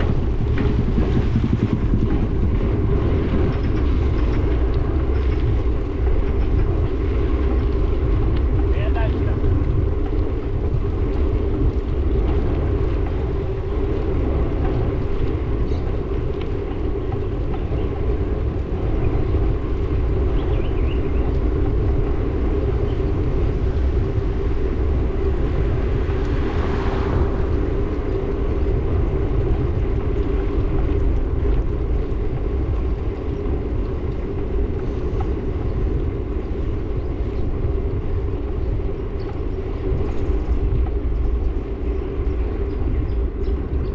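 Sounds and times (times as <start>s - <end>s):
road rumble while riding: 0.0s - 43.9s
vehicle passing: 24.5s - 29.1s.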